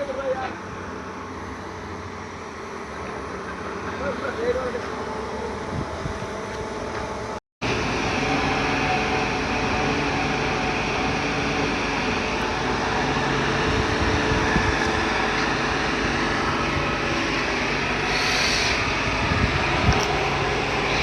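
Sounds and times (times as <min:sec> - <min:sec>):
diesel truck engine running: 0:07.2 - 0:18.2.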